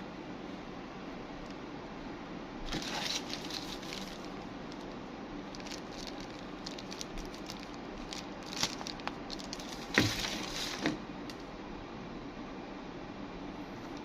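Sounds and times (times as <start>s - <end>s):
scraping rustle: 2.7s - 4.9s, 5.6s - 11.0s.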